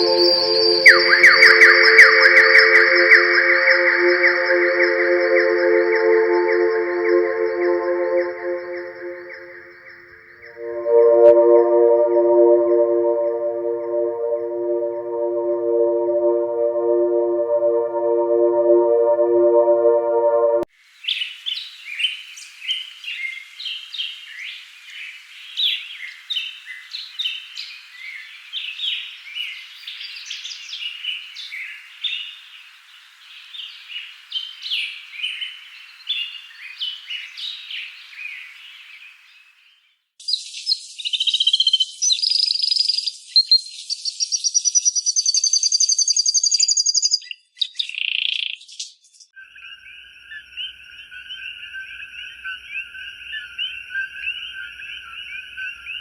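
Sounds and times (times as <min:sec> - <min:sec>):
high rapid trilling bird calls: 0:00.0 - 0:10.6, 0:40.2 - 0:49.0
low pulsed bird call: 0:00.0 - 0:20.7
small birds chirping: 0:21.1 - 0:56.0.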